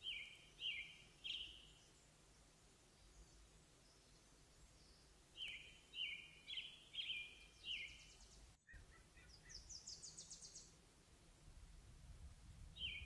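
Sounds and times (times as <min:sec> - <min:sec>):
songbird whistling: 0:04.8 - 0:10.7, 0:12.8 - 0:13.0.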